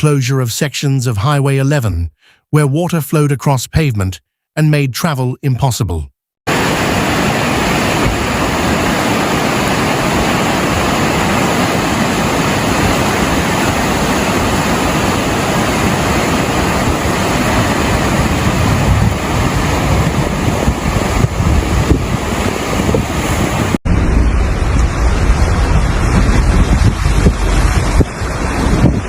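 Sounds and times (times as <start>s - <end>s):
floodwater rushing: 6.5s - 29.0s
low rumbling buffets: 6.5s - 29.0s
rain: 6.5s - 29.0s.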